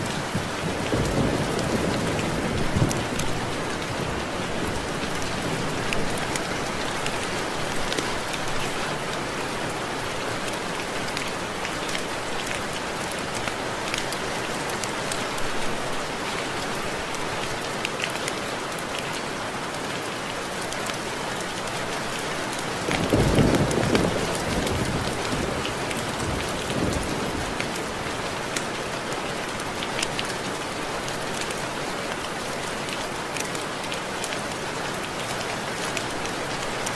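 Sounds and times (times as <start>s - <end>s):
thunder rumbling: 0.0s - 6.0s, 22.9s - 27.6s
rain pattering on window glass: 0.0s - 36.9s.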